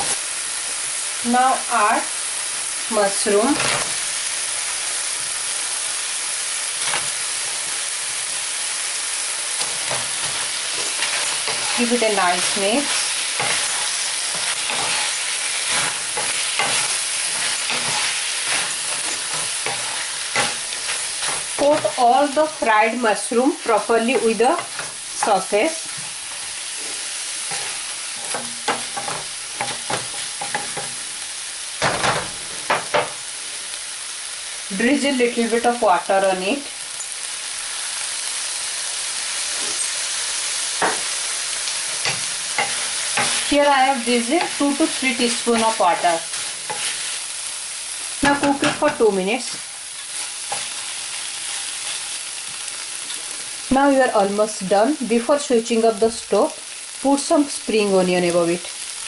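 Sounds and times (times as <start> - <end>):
food sizzling in a skillet: 0.0 - 59.0
utensil scraping and knocking pan: 26.8 - 31.0.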